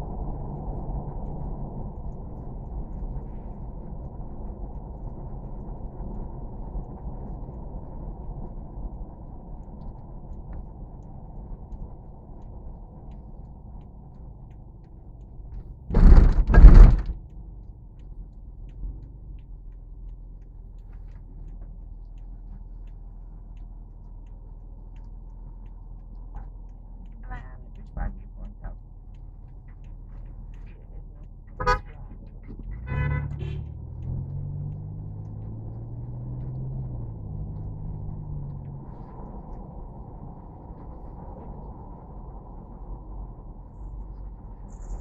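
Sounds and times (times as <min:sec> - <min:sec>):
low rumble: 0:00.0 - 0:45.0
loud knocks: 0:15.9 - 0:17.2.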